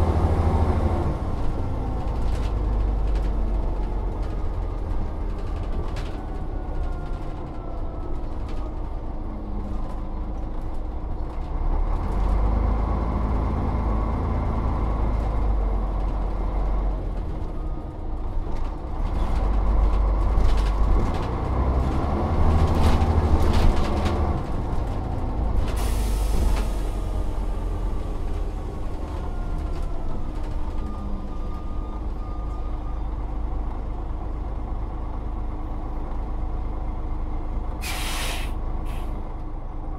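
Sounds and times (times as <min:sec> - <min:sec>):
bus diesel engine: 0:00.0 - 0:39.9
air brake hiss: 0:25.8 - 0:27.2, 0:37.8 - 0:39.2.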